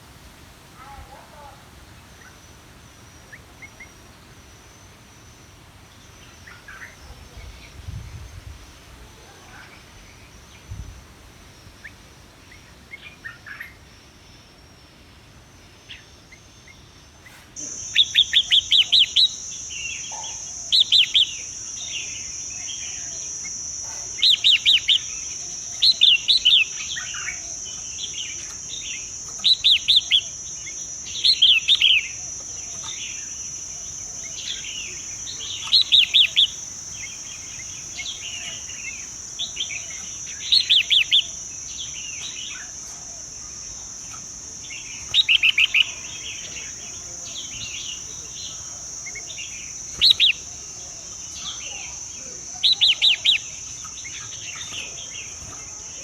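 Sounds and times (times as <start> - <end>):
high-pitched insect whine: 0.0 - 56.0
bird sharp chirps: 44.1 - 50.5.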